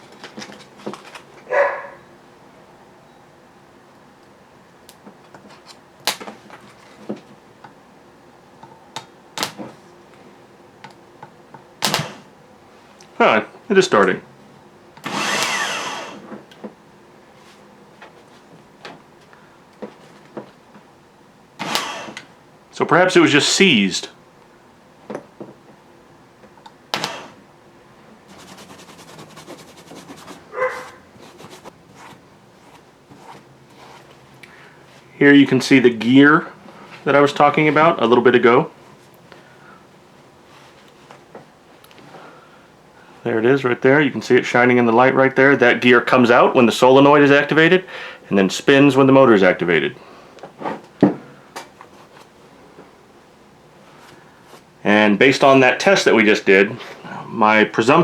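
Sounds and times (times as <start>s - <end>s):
short bark-like call: 1.5s - 2.1s, 30.5s - 31.0s.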